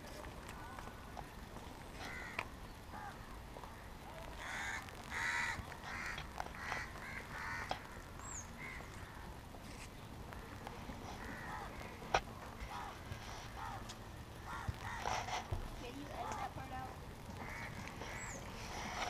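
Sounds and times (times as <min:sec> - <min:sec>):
bird harsh calls: 0:17.4 - 0:19.0.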